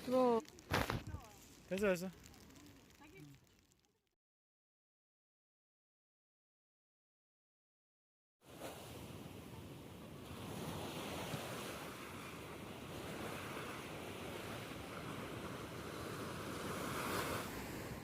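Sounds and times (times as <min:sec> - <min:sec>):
sea waves breaking on beach: 0:08.4 - 0:18.0.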